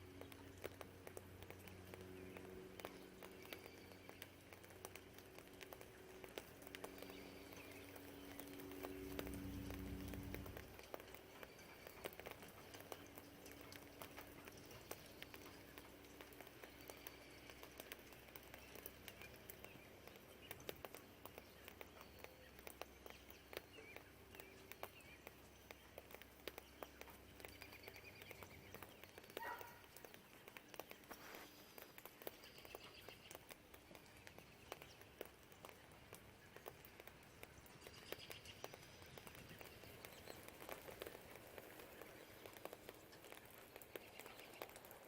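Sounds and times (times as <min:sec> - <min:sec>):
distant birds chirping: 0:00.0 - 0:45.0
distant traffic hum: 0:00.0 - 0:45.0
rain dripping: 0:00.0 - 0:45.0.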